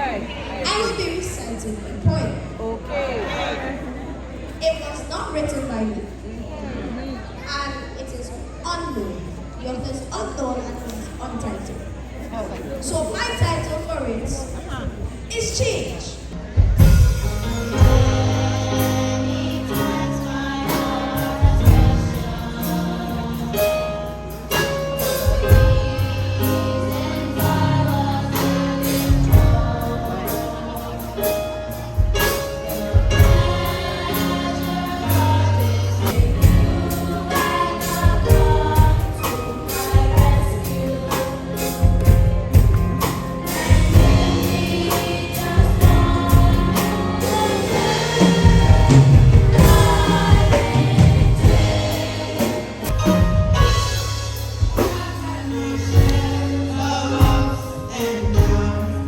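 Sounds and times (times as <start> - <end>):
gospel choir singing: 0.0 - 4.4, 16.6 - 59.0
drum hits: 16.6 - 23.2, 32.0 - 35.4, 36.0 - 40.8, 41.8 - 55.2
heavy bass line: 16.7 - 59.0.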